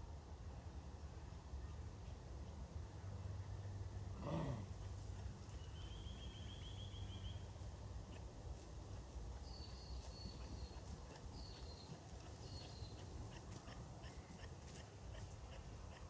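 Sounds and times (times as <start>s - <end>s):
low outdoor rumble: 0.0s - 15.9s
small birds calling: 9.4s - 16.0s.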